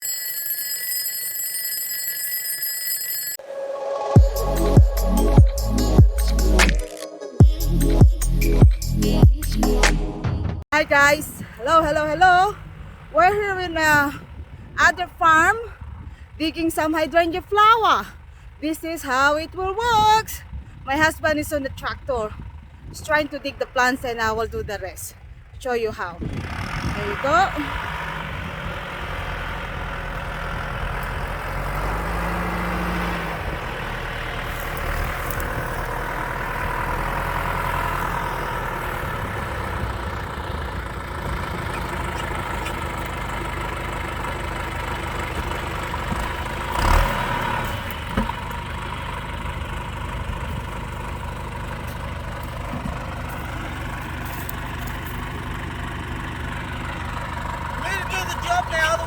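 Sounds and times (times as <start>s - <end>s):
tractor engine running: 4.0s - 59.0s.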